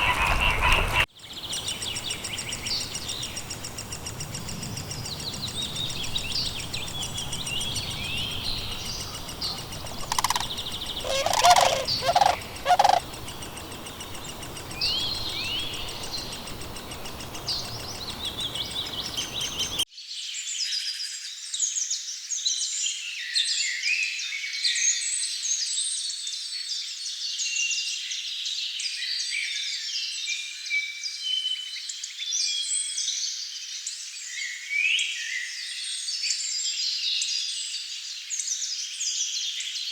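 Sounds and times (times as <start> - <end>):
loud bird call bursts: 0.0 - 3.4, 7.6 - 19.8
songbirds singing: 0.0 - 19.8
many small birds singing: 0.0 - 20.4.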